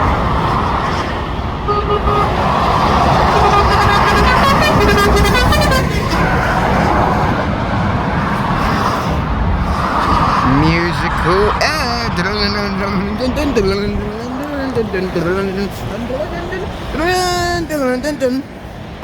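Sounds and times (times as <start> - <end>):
motorway traffic: 0.0 - 19.0
vehicle horn tooting: 1.7 - 6.3.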